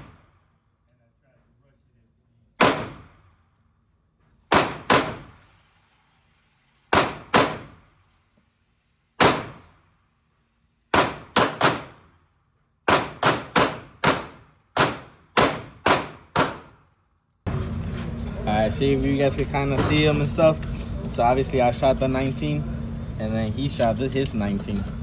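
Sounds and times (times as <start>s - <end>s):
pistol shots echoing indoors: 2.6s - 3.4s, 4.5s - 5.4s, 6.9s - 7.8s, 9.2s - 9.7s, 10.9s - 12.2s, 12.9s - 16.9s.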